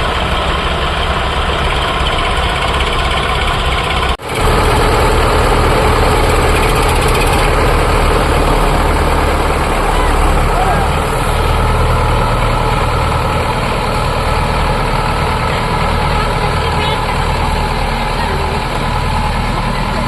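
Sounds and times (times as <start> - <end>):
diesel tractor engine running: 0.0 - 20.0.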